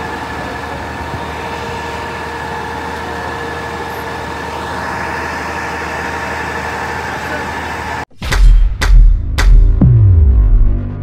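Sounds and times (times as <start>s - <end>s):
heavy engine droning: 0.0s - 8.1s.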